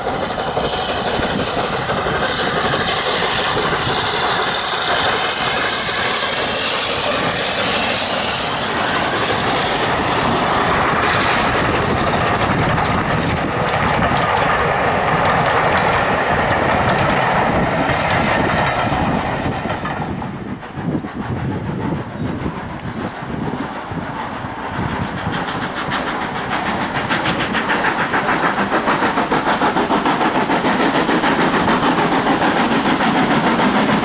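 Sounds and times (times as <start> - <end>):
steam hiss: 0.0 - 34.0
train wheels clattering on rails: 0.0 - 34.0.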